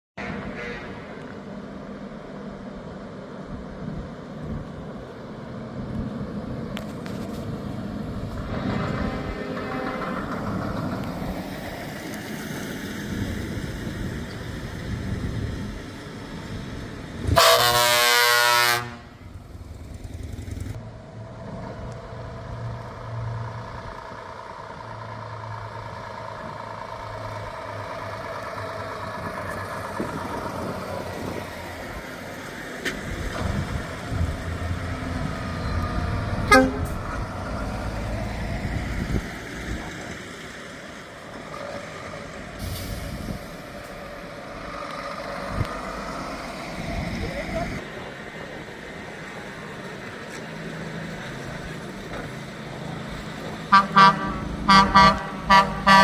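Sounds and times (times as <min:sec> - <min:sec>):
truck air horn blast: 0:00.2 - 0:01.1, 0:08.5 - 0:10.6, 0:17.3 - 0:19.2, 0:36.4 - 0:37.1, 0:53.7 - 0:56.0
heavy truck engines: 0:00.2 - 0:56.0.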